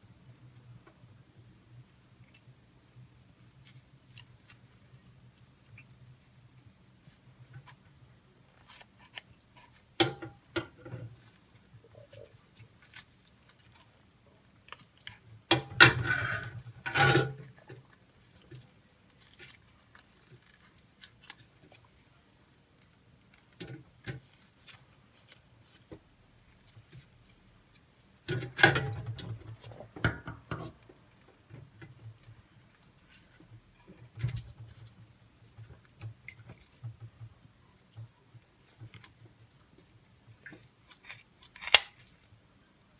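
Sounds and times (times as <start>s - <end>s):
scissors snipping meat: 40.5s - 42.1s.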